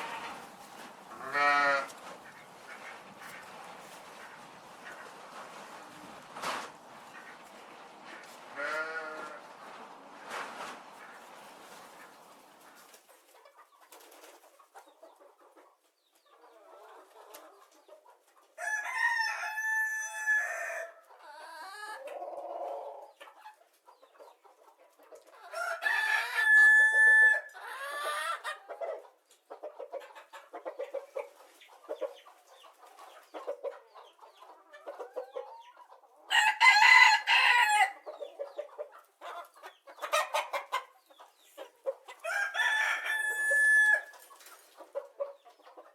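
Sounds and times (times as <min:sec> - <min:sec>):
chicken clucking: 0:00.0 - 0:45.9
rooster crowing: 0:18.6 - 0:20.9, 0:25.6 - 0:27.5, 0:36.3 - 0:38.0, 0:42.2 - 0:44.1.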